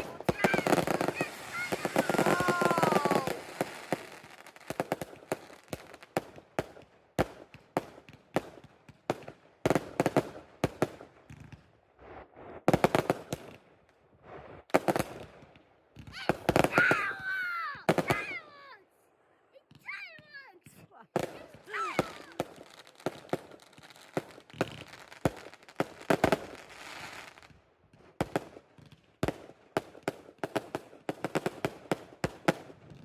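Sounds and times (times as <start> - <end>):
fireworks bangs and crackles: 0.0 - 18.8, 19.6 - 33.0.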